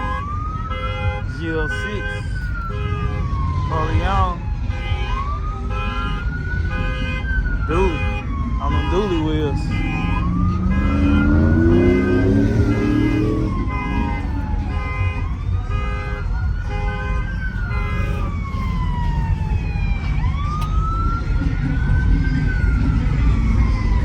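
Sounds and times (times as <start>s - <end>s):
low rumble of engines: 0.0s - 24.0s
sirens wailing: 0.0s - 24.0s
pulsed horn-like electronic tone: 4.7s - 18.4s.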